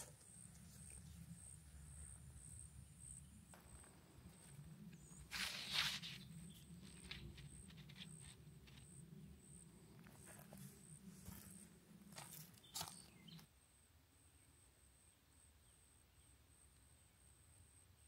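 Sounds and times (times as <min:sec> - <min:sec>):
rustle: 0:03.8 - 0:09.0.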